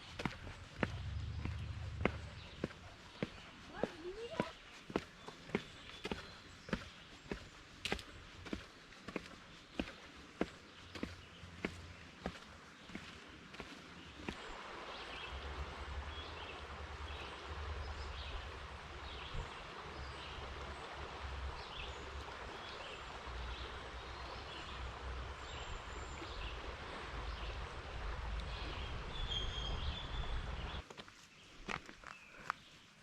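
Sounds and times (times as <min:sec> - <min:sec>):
outdoor rushing noise: 0:00.0 - 0:02.8
low rumble: 0:00.0 - 0:02.9
birds chirping: 0:00.0 - 0:15.4, 0:21.6 - 0:33.0.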